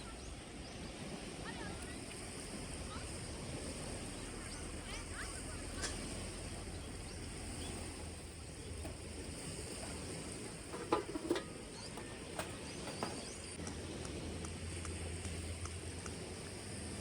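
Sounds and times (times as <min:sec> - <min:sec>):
sharp clicks and knocks: 0:09.8 - 0:13.5.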